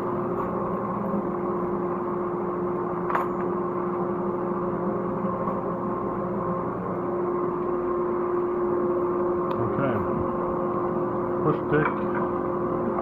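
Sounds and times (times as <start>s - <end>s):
dust collector humming: 0.0s - 13.0s.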